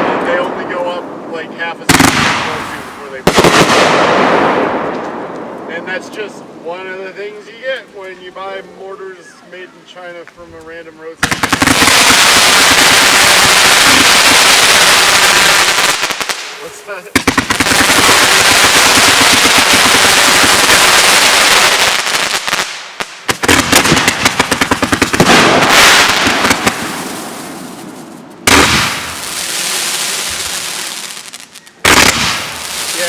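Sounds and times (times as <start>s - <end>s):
firework bang: 1.9s - 5.7s, 22.6s - 31.2s, 31.8s - 33.0s
fireworks crackling pops: 1.9s - 5.7s, 10.3s - 33.0s
firework hissing: 11.4s - 33.0s.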